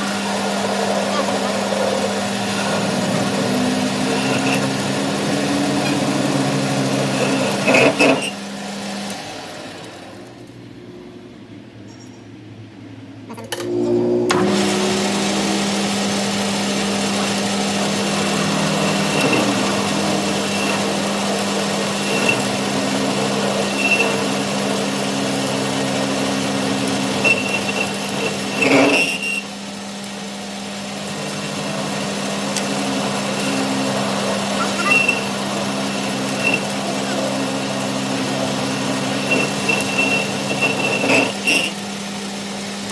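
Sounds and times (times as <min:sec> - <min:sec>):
electric workshop machine humming: 0:00.0 - 0:11.5, 0:13.4 - 0:42.9
short high squeals: 0:00.8 - 0:08.5, 0:21.9 - 0:24.5, 0:27.2 - 0:29.5, 0:33.4 - 0:37.8, 0:38.4 - 0:41.8.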